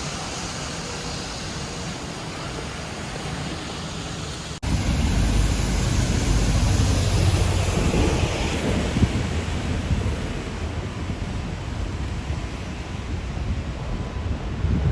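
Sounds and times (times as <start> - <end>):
city street traffic: 0.0 - 14.9
wind buffeting microphone: 4.6 - 14.9.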